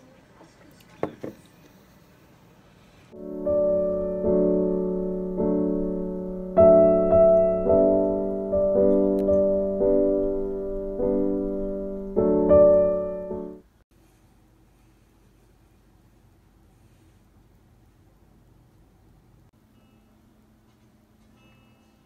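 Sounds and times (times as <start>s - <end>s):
electric piano slow chords: 3.2s - 13.7s.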